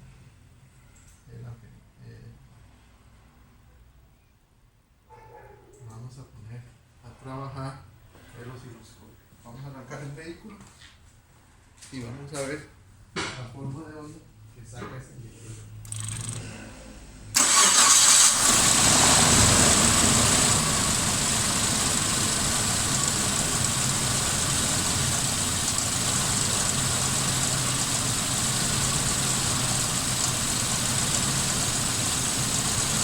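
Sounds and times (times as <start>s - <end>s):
car engine starting: 15.8s - 33.0s
misfiring engine idling: 17.4s - 33.0s.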